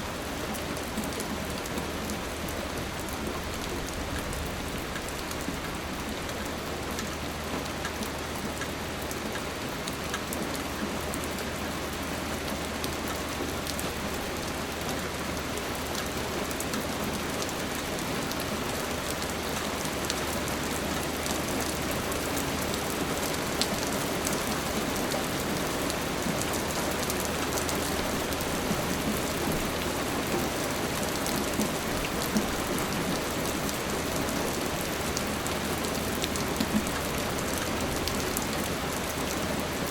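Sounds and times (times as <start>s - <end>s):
raindrop ticks: 7.8s - 11.3s.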